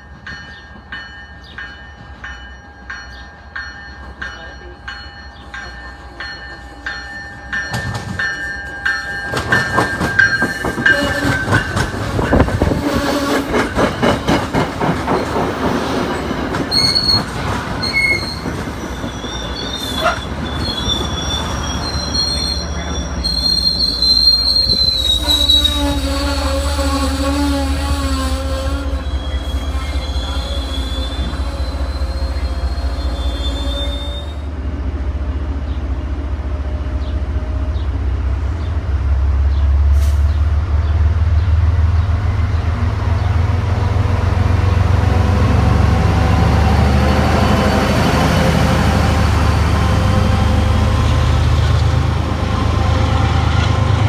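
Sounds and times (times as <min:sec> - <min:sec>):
train bell ringing: 0:00.0 - 0:12.8
diesel locomotive drone: 0:00.0 - 0:54.0
wheels squealing: 0:16.1 - 0:28.2.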